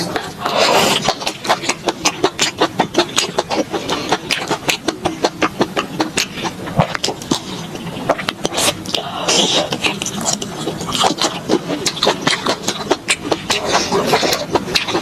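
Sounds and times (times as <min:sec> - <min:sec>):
crisp wet chewing: 0:00.0 - 0:15.0
noisy bite: 0:00.0 - 0:15.0.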